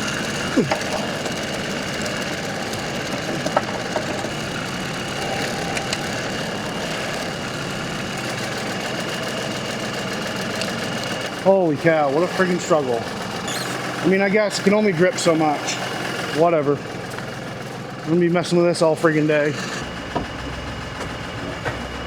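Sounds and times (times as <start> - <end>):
tractor diesel engine idling: 0.0 - 22.0
short falling whine: 19.7 - 22.0.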